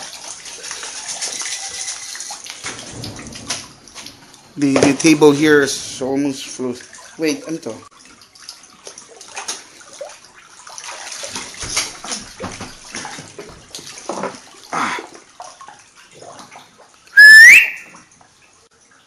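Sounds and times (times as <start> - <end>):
water sloshing and splashing: 0.0 - 19.0
loud rising whistle-like tone: 17.2 - 18.0.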